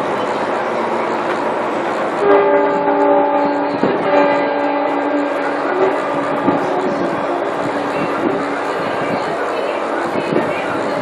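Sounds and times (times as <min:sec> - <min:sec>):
horn sounding a chord: 0:02.2 - 0:07.4.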